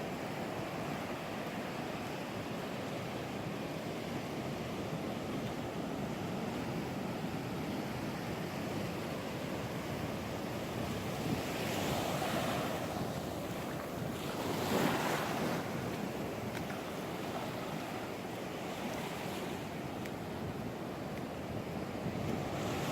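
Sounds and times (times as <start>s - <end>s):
ocean surf breaking: 5.7s - 22.9s
wind buffeting microphone: 9.7s - 18.0s.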